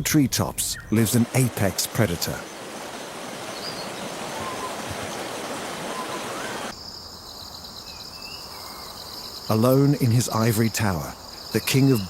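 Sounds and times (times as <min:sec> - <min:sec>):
rushing stream-like noise: 0:00.9 - 0:06.8
faint bird chirps: 0:03.5 - 0:05.2, 0:05.9 - 0:12.0
high pulsing insect trill: 0:06.7 - 0:12.0.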